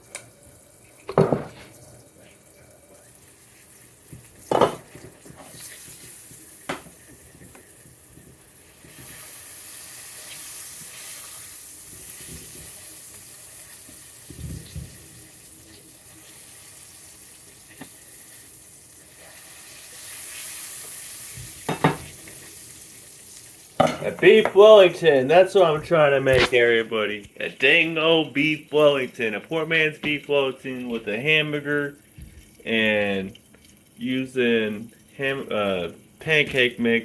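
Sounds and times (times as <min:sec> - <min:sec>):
steady kitchen hiss: 0:00.0 - 0:37.0
pans and utensils knocking: 0:01.1 - 0:01.6, 0:04.5 - 0:05.1, 0:06.7 - 0:07.0, 0:21.7 - 0:22.1, 0:23.8 - 0:24.7.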